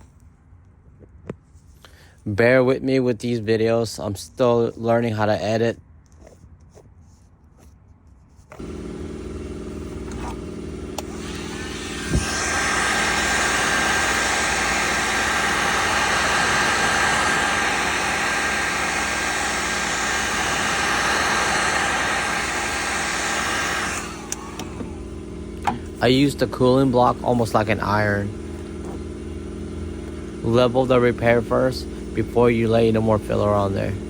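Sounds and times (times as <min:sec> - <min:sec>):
heat gun fan blowing: 0:08.5 - 0:34.0.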